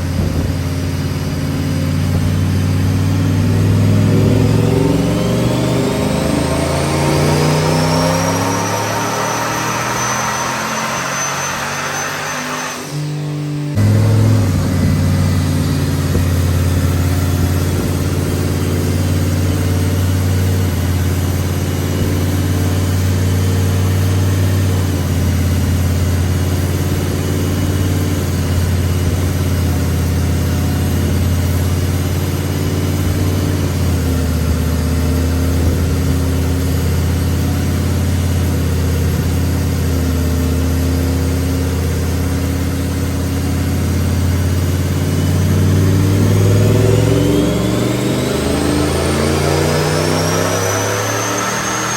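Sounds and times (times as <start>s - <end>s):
truck engine idling: 13.8s - 19.4s.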